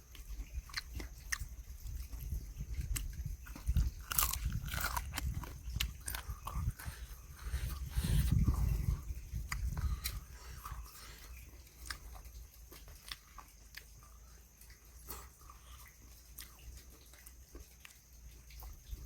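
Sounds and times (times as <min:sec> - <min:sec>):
small crunches and clicks: 0:00.0 - 0:08.4
chewing and biting food: 0:00.0 - 0:19.0.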